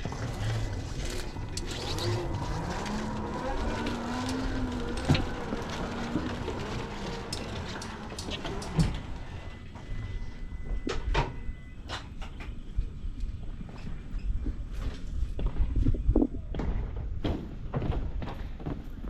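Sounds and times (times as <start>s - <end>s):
motor speeding up: 0.0s - 8.9s.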